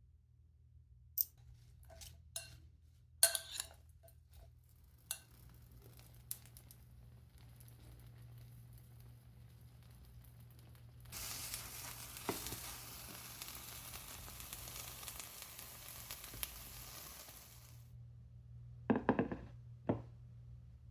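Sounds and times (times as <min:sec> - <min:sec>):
egg mixture sizzling in a pan: 0:03.2 - 0:17.9.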